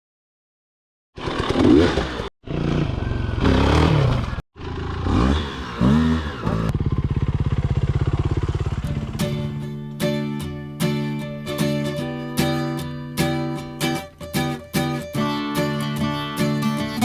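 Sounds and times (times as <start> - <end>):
dirt bike engine revving: 1.2 - 9.7.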